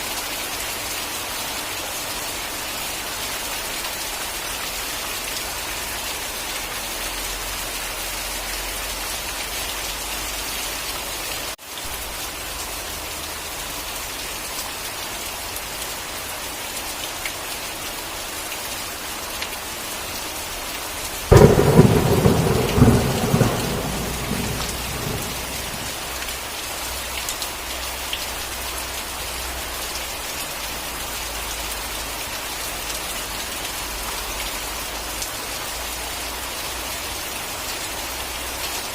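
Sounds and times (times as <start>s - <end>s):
heavy rain: 0.0s - 38.9s
loud thunderclap rumbling: 21.3s - 26.2s.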